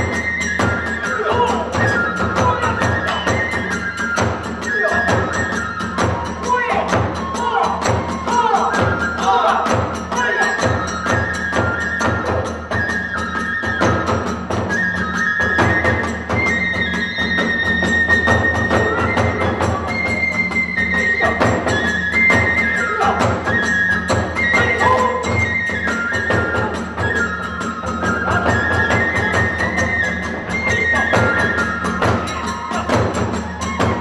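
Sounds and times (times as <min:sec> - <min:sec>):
bamboo flute: 0:00.0 - 0:34.0
drum beats: 0:00.0 - 0:34.0.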